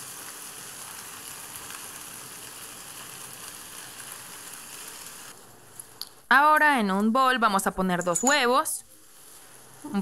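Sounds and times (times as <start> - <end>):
sausages sizzling in a pan: 0.0 - 6.0, 8.6 - 10.0.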